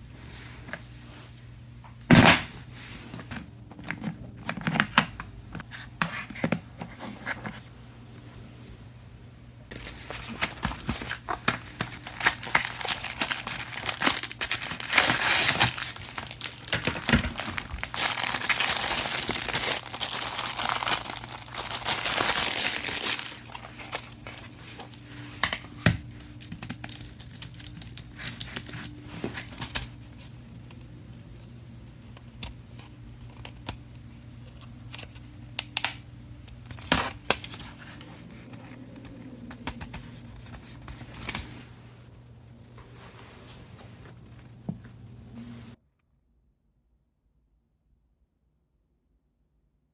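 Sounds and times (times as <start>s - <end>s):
packaging crinkling and tearing: 9.7s - 30.0s.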